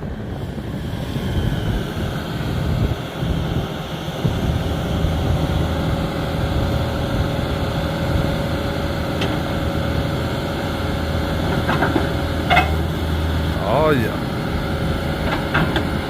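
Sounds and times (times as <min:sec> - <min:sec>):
diesel engine idling: 0:04.6 - 0:16.0.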